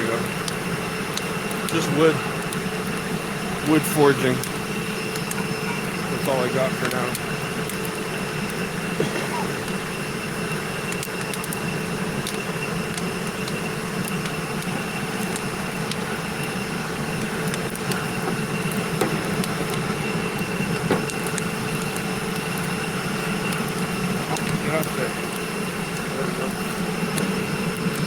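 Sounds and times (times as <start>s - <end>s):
burning wood crackling: 0.0s - 28.0s
steady machine-like hum: 0.0s - 28.0s.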